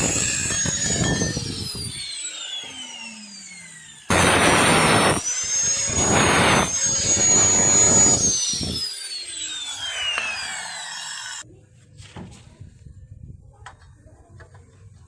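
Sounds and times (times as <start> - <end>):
power tool whining and grinding: 0.0 - 11.5.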